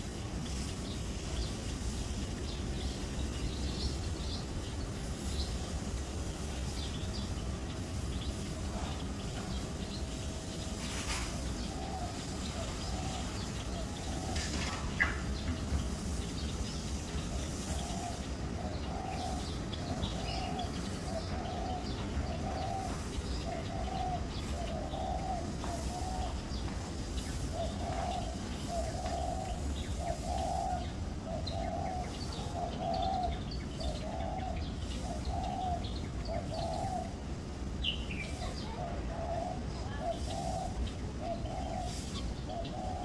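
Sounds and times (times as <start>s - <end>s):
birds chirping: 0.0s - 43.0s
bird cooing: 10.2s - 15.6s, 17.4s - 43.0s.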